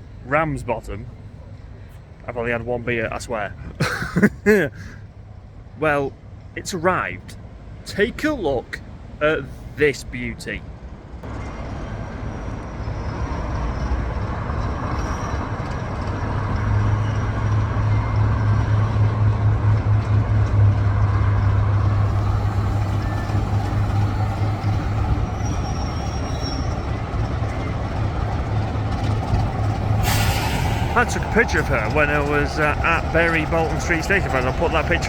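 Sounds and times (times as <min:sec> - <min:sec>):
diesel locomotive engine throbbing: 0:12.0 - 0:35.0.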